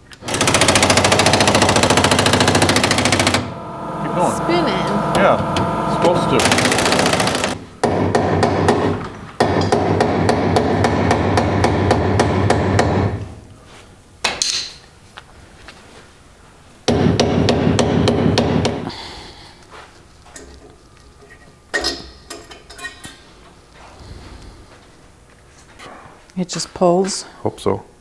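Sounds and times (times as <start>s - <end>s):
impact wrench hammering: 0.2s - 13.2s, 16.9s - 18.9s.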